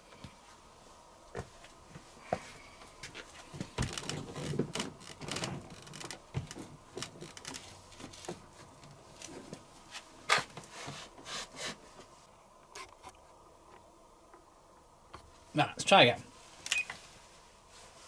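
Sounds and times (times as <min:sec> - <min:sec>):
rustling: 0:16.2 - 0:18.0.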